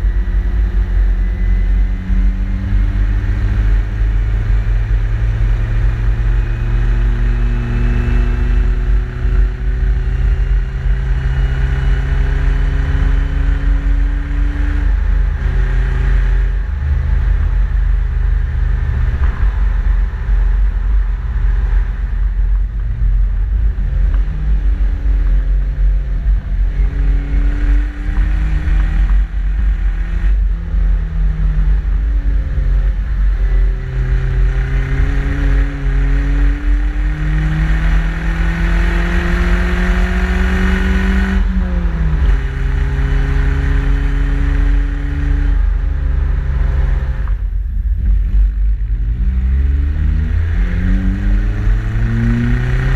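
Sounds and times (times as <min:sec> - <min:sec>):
car engine accelerating: 0:00.0 - 0:52.9
heavy low exhaust rumble: 0:13.4 - 0:38.9, 0:39.5 - 0:52.9.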